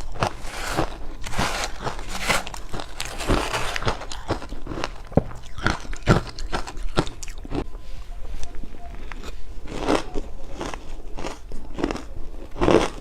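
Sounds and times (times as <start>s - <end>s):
ice being chewed: 0.0s - 7.6s.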